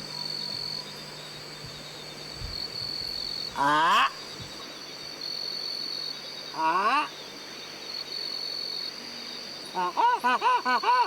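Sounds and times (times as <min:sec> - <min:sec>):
high insect buzz: 0:00.0 - 0:06.6.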